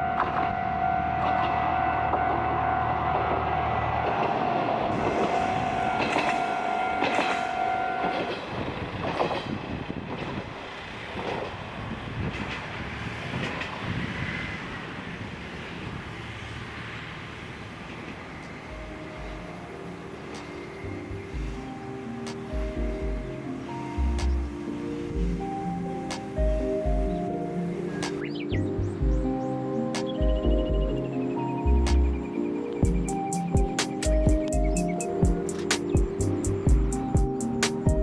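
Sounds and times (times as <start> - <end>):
steady high tone: 0.0 - 8.4, 18.2 - 38.0
diesel railcar engine hum: 0.0 - 38.0.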